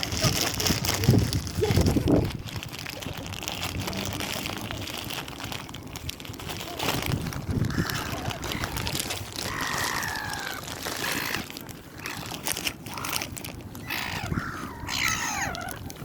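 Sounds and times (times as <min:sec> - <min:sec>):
clicks and crinkling: 0:00.0 - 0:14.4
water birds calling: 0:07.6 - 0:16.0.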